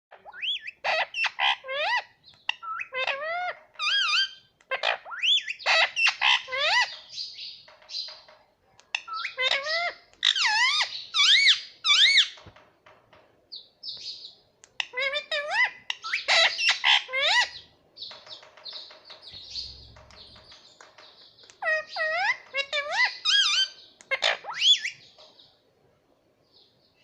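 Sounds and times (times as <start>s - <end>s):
parrot squawking and chirping: 0.1s - 8.3s, 8.9s - 12.6s, 14.1s - 25.1s.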